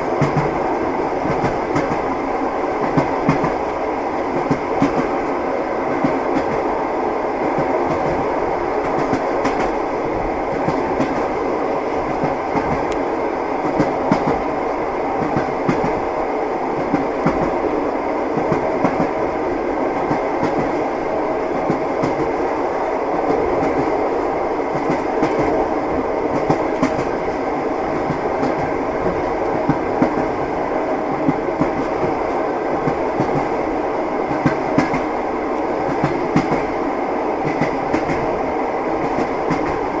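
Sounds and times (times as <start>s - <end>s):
train wheels clacking over rail joints: 0.0s - 2.1s, 2.8s - 5.3s, 7.4s - 9.8s, 13.6s - 14.5s, 26.3s - 30.5s, 34.3s - 36.7s, 37.4s - 38.3s, 39.0s - 39.9s
rumble of moving train carriage: 0.0s - 40.0s.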